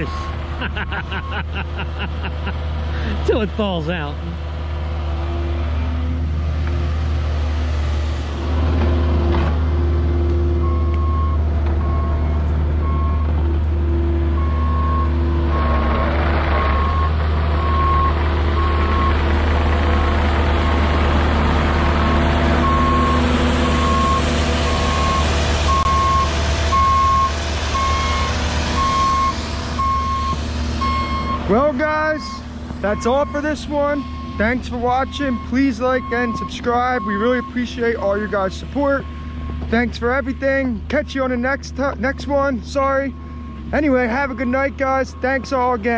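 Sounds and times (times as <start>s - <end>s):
excavator diesel engine running: 0.0s - 45.9s
backup alarm beeping: 22.6s - 31.4s.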